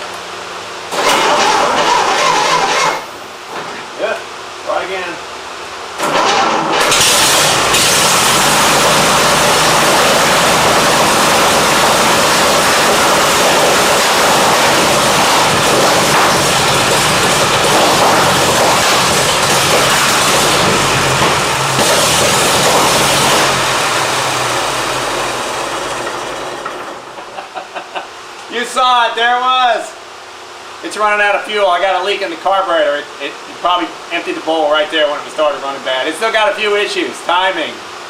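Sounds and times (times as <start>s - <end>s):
engine running loud: 6.0s - 27.8s.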